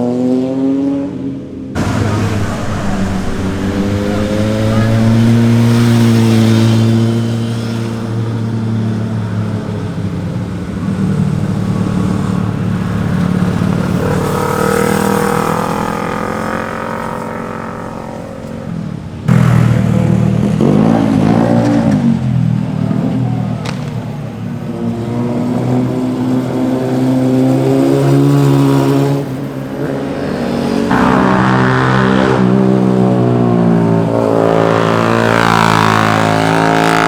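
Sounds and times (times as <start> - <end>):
motorcycles passing and revving: 0.0 - 37.0.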